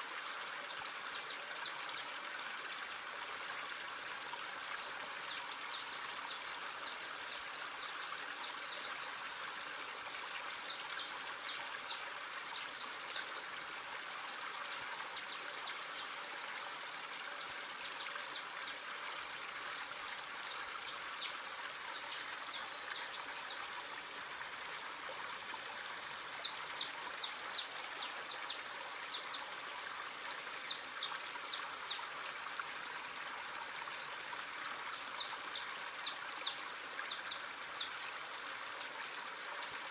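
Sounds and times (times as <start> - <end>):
running stream: 0.0 - 39.9
birds chirping: 25.6 - 33.3.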